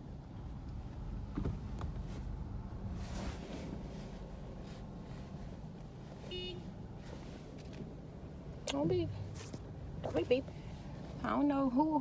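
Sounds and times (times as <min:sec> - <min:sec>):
car idling inside cabin: 0:00.0 - 0:12.0
short car horn beep: 0:06.3 - 0:06.7.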